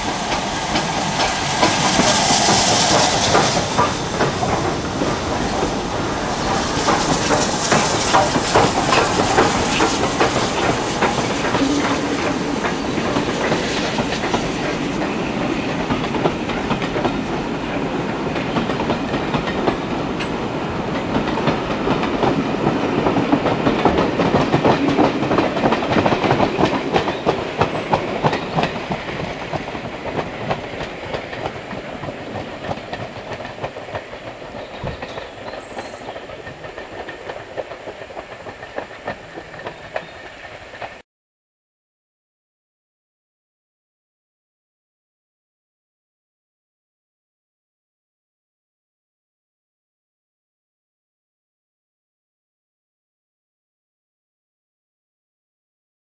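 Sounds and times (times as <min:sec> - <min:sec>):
steam hissing: 0:00.0 - 0:41.0
train wheels clattering over rail joints: 0:00.0 - 0:41.0.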